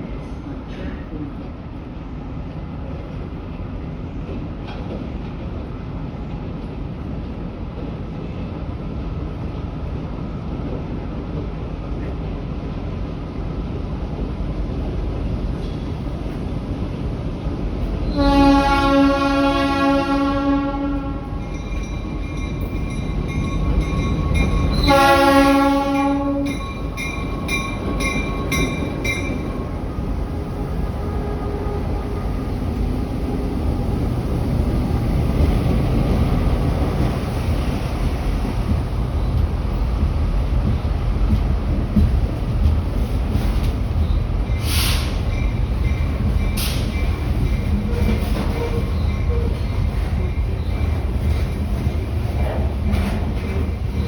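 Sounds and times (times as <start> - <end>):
train rumbling: 0.0 - 54.0
train horn blasts: 18.1 - 21.5, 24.7 - 26.7, 30.6 - 32.6.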